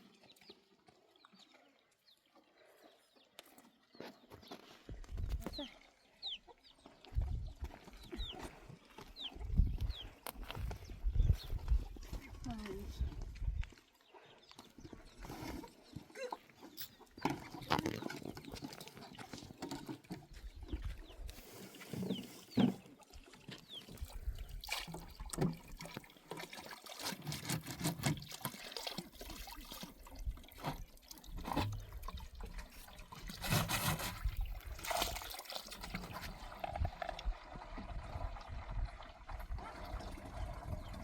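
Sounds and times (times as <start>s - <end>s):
small splashes and knocks: 15.6s - 21.1s, 21.8s - 38.7s.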